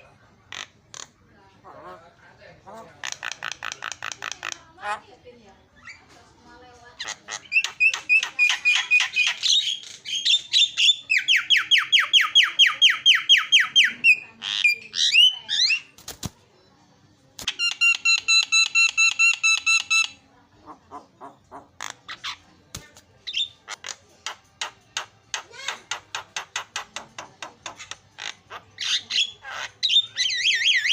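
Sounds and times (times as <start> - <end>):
sharp bird clicks: 3.0 - 4.6, 22.7 - 28.4
myna bird singing: 7.0 - 16.0, 23.2 - 30.9.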